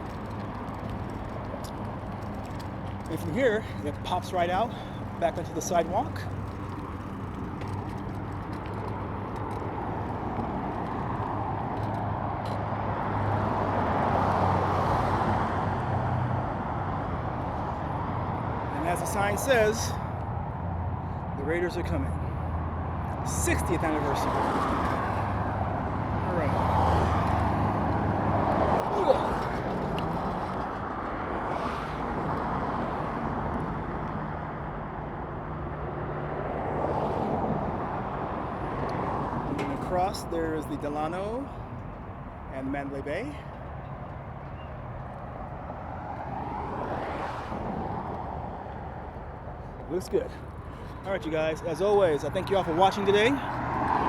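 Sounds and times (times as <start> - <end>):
motor vehicles passing: 0.0 - 54.0
road traffic noise: 0.0 - 54.0
car passing by: 22.2 - 34.5, 36.0 - 40.4, 45.7 - 49.2, 50.0 - 54.0.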